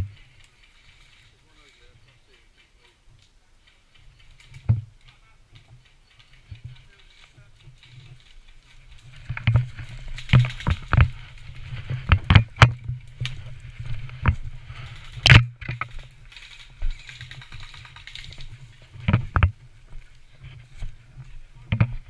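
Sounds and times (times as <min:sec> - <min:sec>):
sharp clicks and knocks: 0:09.1 - 0:22.0.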